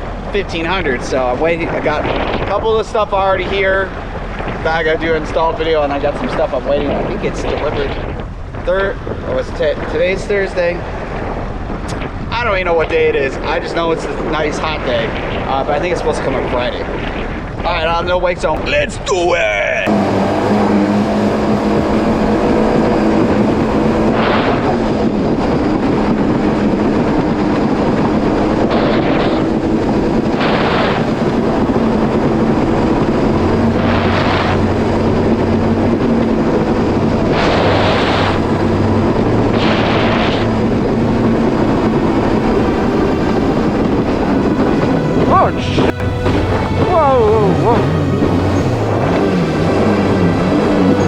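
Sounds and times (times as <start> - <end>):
jet ski engine drone: 0.0 - 18.0, 19.4 - 51.0
rushing water surges: 27.9 - 51.0.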